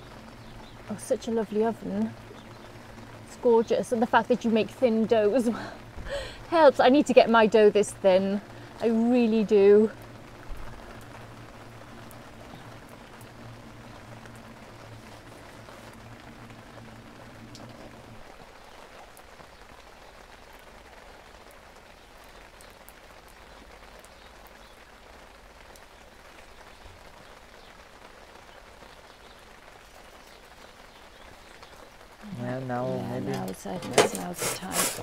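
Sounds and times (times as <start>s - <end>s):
low steady hum: 0.0s - 18.8s
steady rain hiss: 0.0s - 35.0s.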